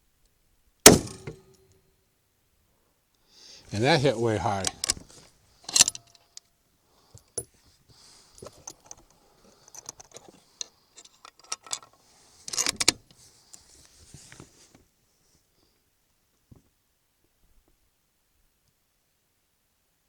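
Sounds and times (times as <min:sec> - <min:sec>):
rifle bolt clicks and rattles: 0:04.6 - 0:05.1, 0:05.7 - 0:06.4, 0:08.4 - 0:13.1.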